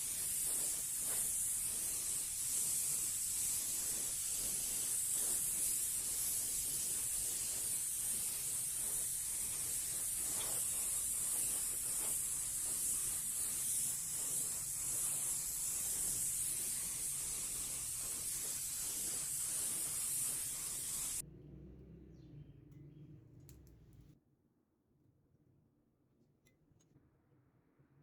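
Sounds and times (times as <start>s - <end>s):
spraying hiss: 0.0s - 21.2s.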